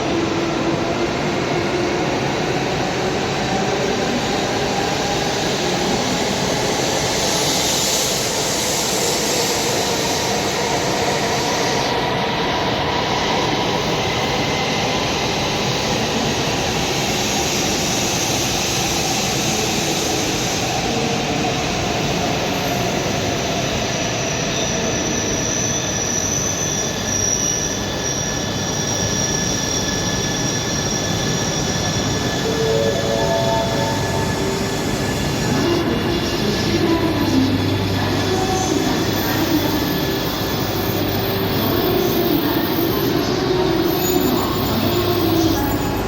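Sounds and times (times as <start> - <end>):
train rumble and rushing: 0.0 - 46.0
faint high whining tones: 29.8 - 46.0.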